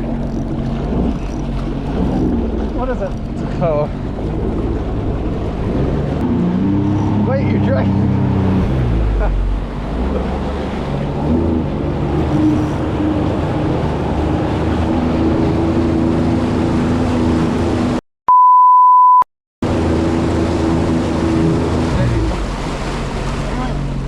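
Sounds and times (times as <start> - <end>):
jet ski engine running: 0.0 - 18.0, 19.6 - 24.0
water noise: 0.0 - 18.0, 19.6 - 24.0
wind: 0.0 - 18.0, 19.6 - 24.0
censor bleep: 18.3 - 19.3.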